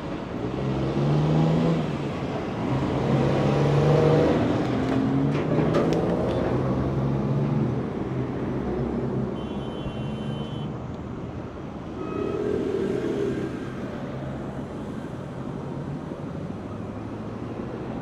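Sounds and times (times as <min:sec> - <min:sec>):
vehicle passing: 0:12.0 - 0:14.8.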